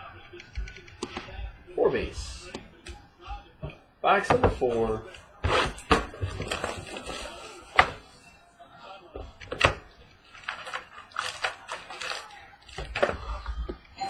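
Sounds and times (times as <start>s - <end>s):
packaging crinkling and rustling: 5.5s - 7.6s, 10.3s - 13.5s.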